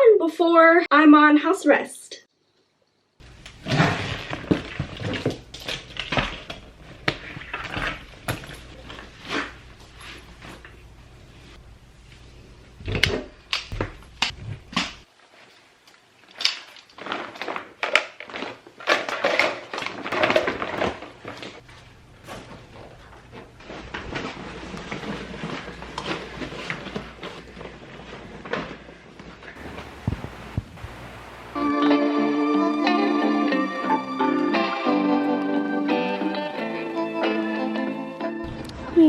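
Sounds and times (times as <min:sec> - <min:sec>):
objects knocking and rustling: 0:03.3 - 0:10.8, 0:12.8 - 0:31.2
low steady hum: 0:29.6 - 0:31.8.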